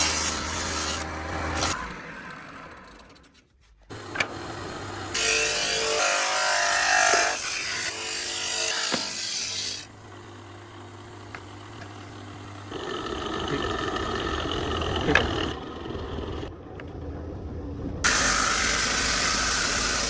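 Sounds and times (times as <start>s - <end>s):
power tool running loud: 18.1s - 20.0s.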